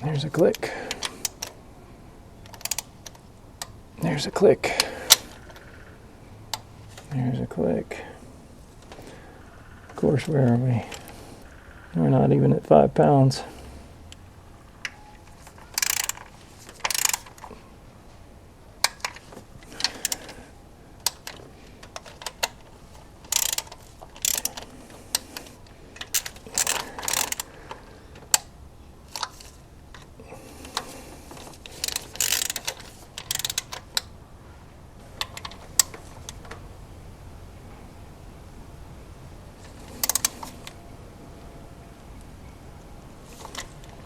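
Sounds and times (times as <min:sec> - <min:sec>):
torque wrench clicking: 0:00.5 - 0:01.6, 0:02.4 - 0:03.8, 0:14.8 - 0:17.5, 0:18.8 - 0:20.4, 0:21.0 - 0:28.5, 0:29.1 - 0:34.2, 0:35.1 - 0:36.7, 0:39.6 - 0:40.8.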